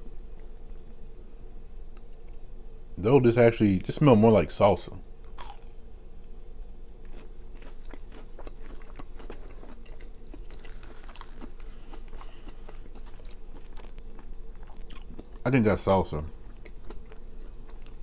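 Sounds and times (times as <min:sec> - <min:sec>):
faint steady hum: 0:00.0 - 0:18.0
person chewing food: 0:05.2 - 0:06.0, 0:06.8 - 0:15.4, 0:16.3 - 0:18.0.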